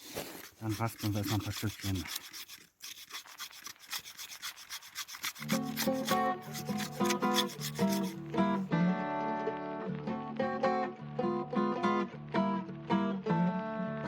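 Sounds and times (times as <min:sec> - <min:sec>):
tinder being shaved: 0:00.0 - 0:08.4
acoustic guitar music: 0:05.5 - 0:14.0.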